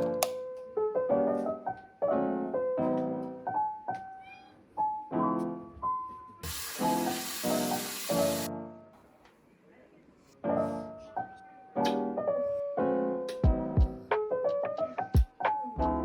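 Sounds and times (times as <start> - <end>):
piano music: 0.0 - 9.0, 10.4 - 16.0
loud hiss: 6.4 - 8.5.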